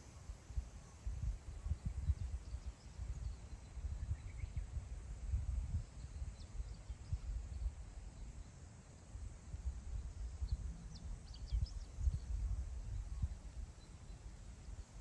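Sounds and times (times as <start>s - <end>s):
faint bird chirps: 0.1s - 4.9s, 10.1s - 15.0s.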